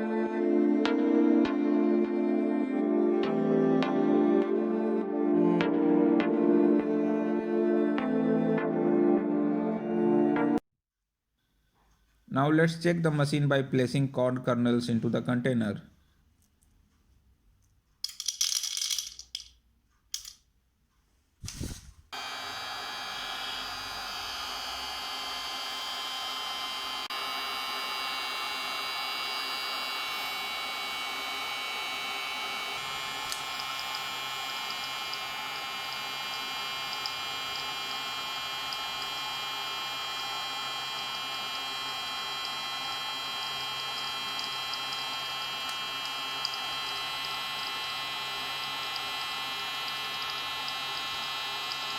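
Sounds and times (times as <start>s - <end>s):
popcorn kernels rattling: 18.0s - 19.6s
blower motor whirring: 21.4s - 51.9s.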